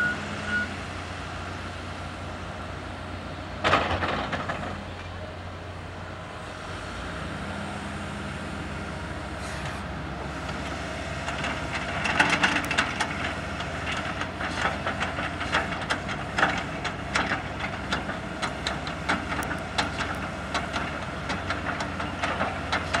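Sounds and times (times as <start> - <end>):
bulldozer engine running: 0.0 - 23.0
clanks and rattles: 3.6 - 4.8, 11.2 - 23.0.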